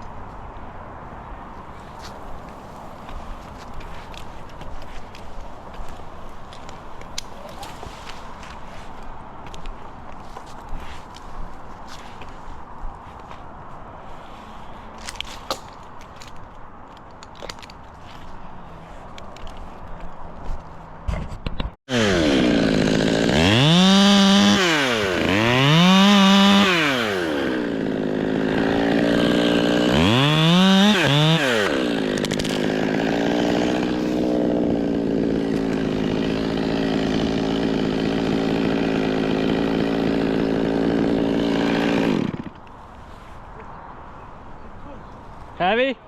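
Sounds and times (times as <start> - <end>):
chainsaw revving: 21.9 - 42.6.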